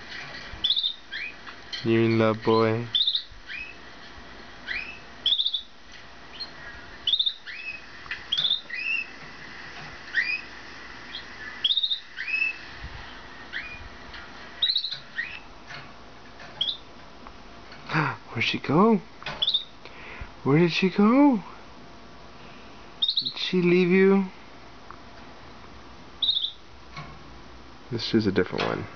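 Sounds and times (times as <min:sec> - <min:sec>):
canaries chirping: 0:00.0 - 0:17.0, 0:18.8 - 0:19.9, 0:23.0 - 0:24.3, 0:26.2 - 0:27.1.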